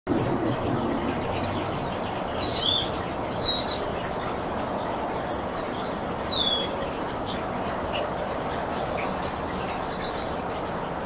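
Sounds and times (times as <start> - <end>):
songbirds whistling and chipping: 0.1 - 11.0
steady wind: 0.1 - 11.0.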